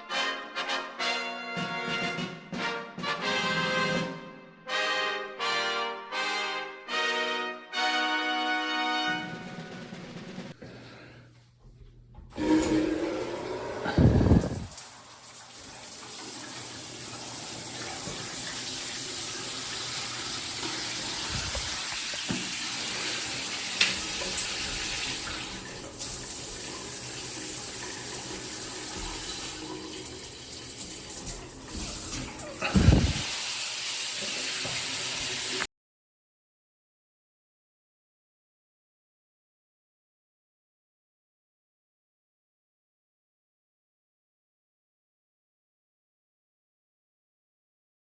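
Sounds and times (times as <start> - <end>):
shower spraying water: 12.4 - 35.7.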